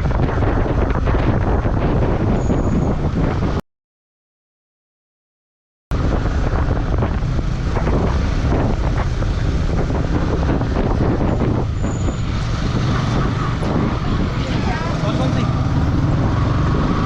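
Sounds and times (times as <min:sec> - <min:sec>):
road noise: 0:00.0 - 0:03.6, 0:05.9 - 0:17.0
wind buffeting on microphone: 0:00.0 - 0:03.6, 0:05.9 - 0:17.0
motorcycle engine: 0:06.0 - 0:17.0.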